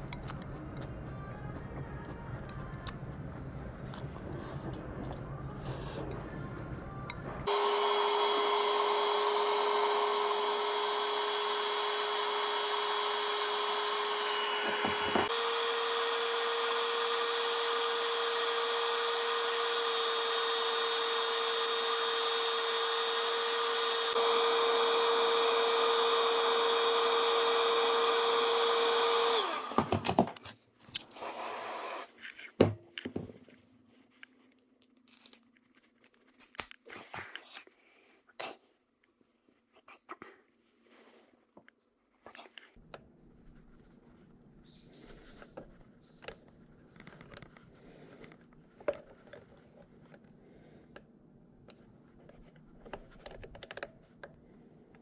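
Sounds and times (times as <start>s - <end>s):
small electric motor running: 7.4s - 30.0s.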